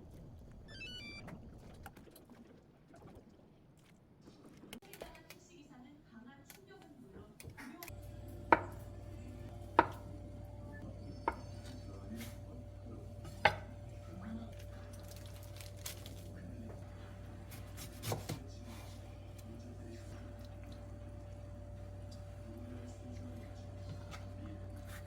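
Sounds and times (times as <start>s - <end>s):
steady low hum: 7.9s - 25.0s
knife chopping on cutting board: 9.7s - 10.0s, 17.5s - 18.5s.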